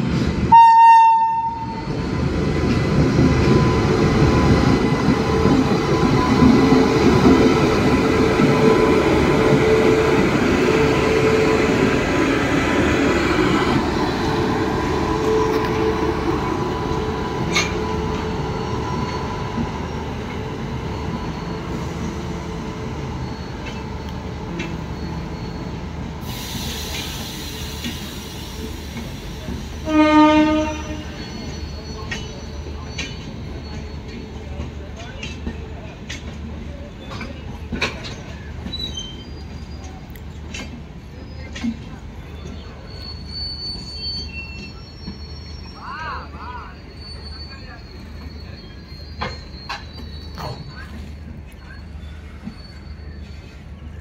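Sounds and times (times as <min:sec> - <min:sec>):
train rolling past on rails: 0:00.0 - 0:54.0
train horn blast: 0:00.5 - 0:01.8, 0:29.8 - 0:31.2.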